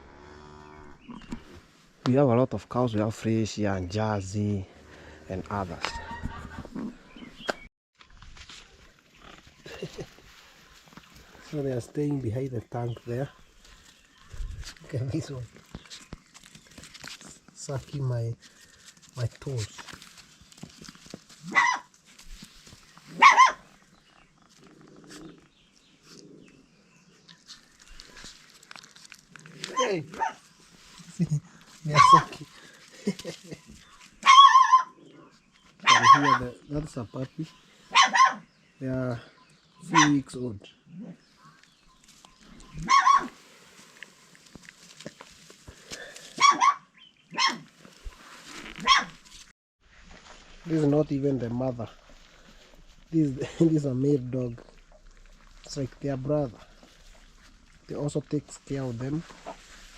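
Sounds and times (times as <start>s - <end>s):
puppies yelping: 21.4s - 21.9s, 23.1s - 23.7s, 34.2s - 35.0s, 35.8s - 36.6s, 37.9s - 38.5s, 42.7s - 43.4s, 46.4s - 47.7s, 48.8s - 49.2s
dog barking: 21.5s - 21.9s, 23.1s - 23.7s, 29.8s - 30.4s, 34.2s - 35.0s, 35.8s - 36.5s, 37.9s - 38.5s, 39.9s - 40.2s, 42.8s - 43.4s, 46.4s - 47.7s, 48.8s - 49.2s.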